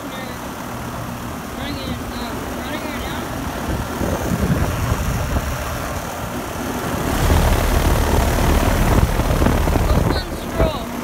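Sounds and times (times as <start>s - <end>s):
air conditioner unit droning: 0.0s - 11.0s
wind buffeting microphone: 3.2s - 11.0s.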